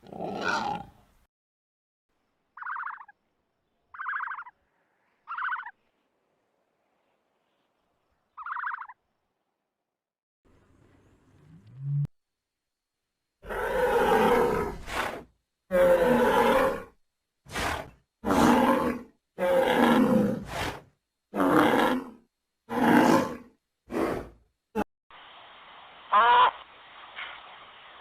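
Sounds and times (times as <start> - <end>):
large animal roaring: 13.4 - 24.4.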